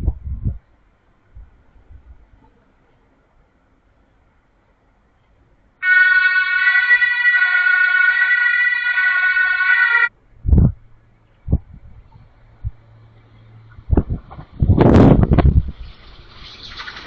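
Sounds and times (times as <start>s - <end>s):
train horn blast: 5.8s - 10.1s.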